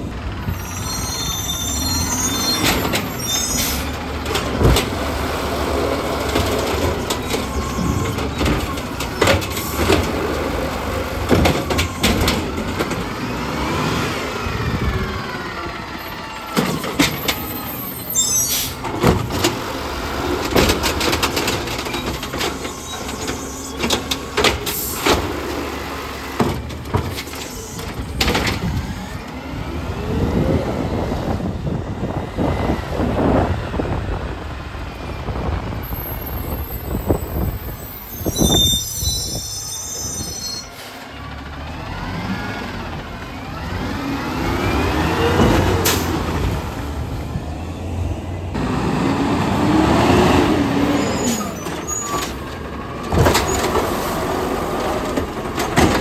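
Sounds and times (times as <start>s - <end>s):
garbage truck engine revving: 0.0s - 56.0s
high squeal: 0.4s - 4.0s, 7.0s - 9.8s, 16.0s - 18.9s, 21.8s - 25.1s, 27.3s - 29.2s, 35.8s - 41.2s, 50.8s - 52.5s.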